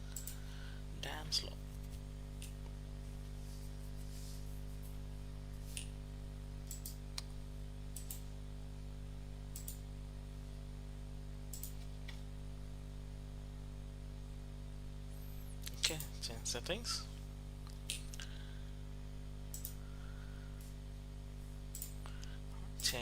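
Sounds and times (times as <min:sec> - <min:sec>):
steady low hum: 0:00.0 - 0:23.0
computer mouse clicking: 0:00.1 - 0:00.4, 0:06.7 - 0:07.3, 0:08.0 - 0:08.2, 0:09.6 - 0:09.8, 0:11.5 - 0:11.9, 0:19.5 - 0:19.8, 0:21.8 - 0:22.0.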